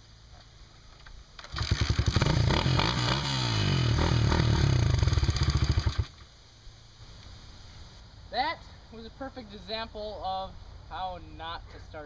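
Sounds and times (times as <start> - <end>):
dirt bike engine revving: 1.5 - 6.2.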